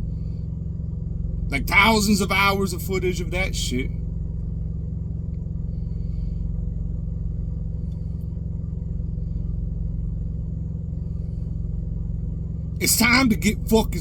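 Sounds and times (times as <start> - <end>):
diesel generator droning: 0.0 - 14.0.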